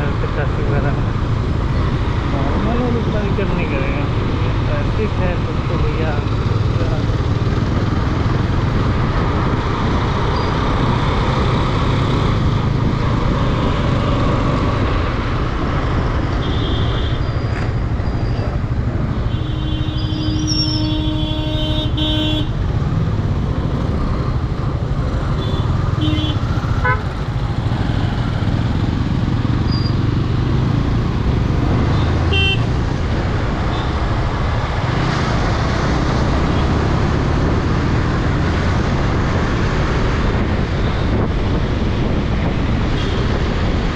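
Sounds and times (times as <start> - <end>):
motorcycle engine and wind noise: 0.0 - 43.9
vehicle horns honking: 19.1 - 22.6, 25.4 - 27.1, 31.9 - 32.8.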